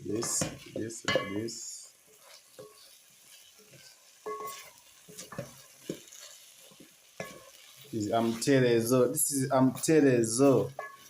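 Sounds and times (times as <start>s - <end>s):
food sizzling in a pot: 0.0s - 11.0s
spoon scraping a pot: 2.1s - 8.4s, 10.7s - 11.0s.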